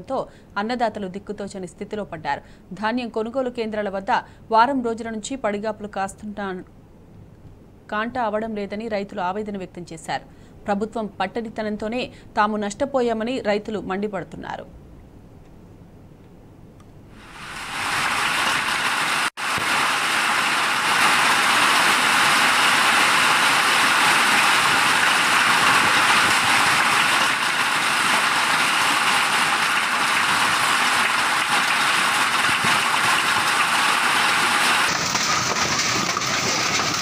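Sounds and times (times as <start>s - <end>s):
heavy rain falling: 17.2s - 37.0s.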